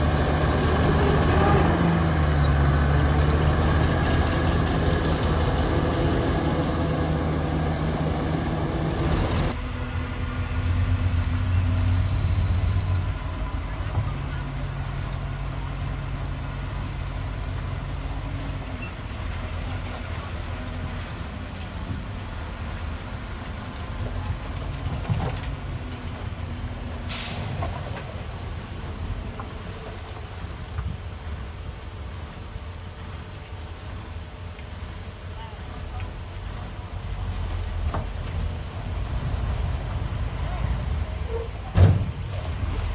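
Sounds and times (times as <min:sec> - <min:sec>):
heavy diesel engine droning: 0:00.0 - 0:42.9
higher mechanical noise: 0:00.0 - 0:42.9
short burst of hiss: 0:27.1 - 0:27.8.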